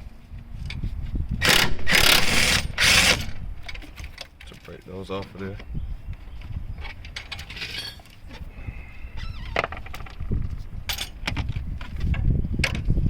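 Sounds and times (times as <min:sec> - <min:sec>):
low rumbling handling noise: 0:00.0 - 0:13.0
metal tools clinking: 0:07.1 - 0:08.2, 0:10.9 - 0:11.2.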